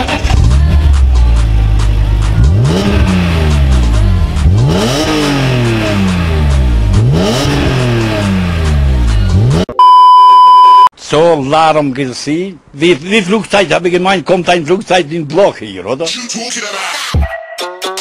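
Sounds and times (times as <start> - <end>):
car engine free-revving: 1.6 - 9.7.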